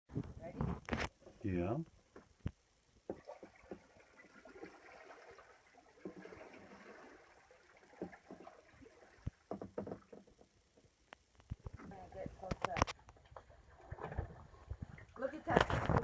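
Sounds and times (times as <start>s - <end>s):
paddle splashing water: 3.0s - 10.6s, 13.2s - 16.0s.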